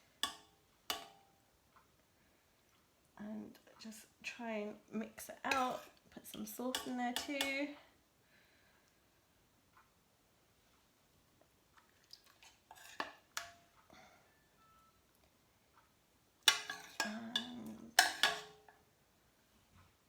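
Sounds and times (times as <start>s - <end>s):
spoon scraping cooking pot: 5.4s - 7.6s, 12.2s - 13.6s, 16.5s - 18.7s.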